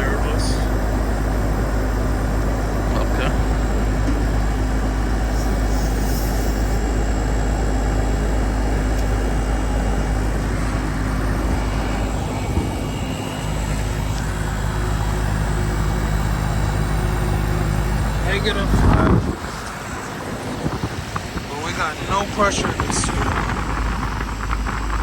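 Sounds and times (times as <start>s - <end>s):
air conditioner unit humming: 0.0s - 25.0s.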